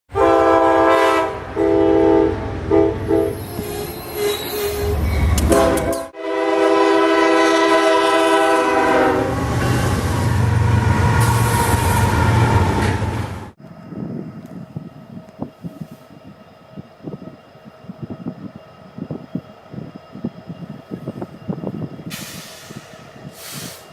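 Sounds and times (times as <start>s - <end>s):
locomotive air horn blasts: 0.1s - 3.4s, 4.2s - 10.0s
train wheel noise: 1.1s - 6.2s, 7.0s - 23.9s.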